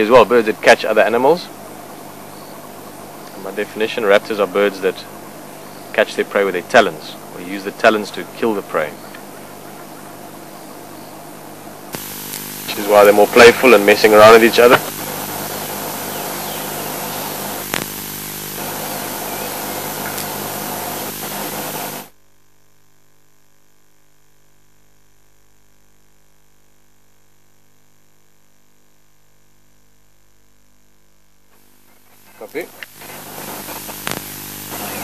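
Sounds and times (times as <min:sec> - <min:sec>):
faint electrical hum: 0:00.0 - 0:35.0
static hiss: 0:00.0 - 0:35.0
click: 0:17.7 - 0:17.9, 0:33.8 - 0:34.3.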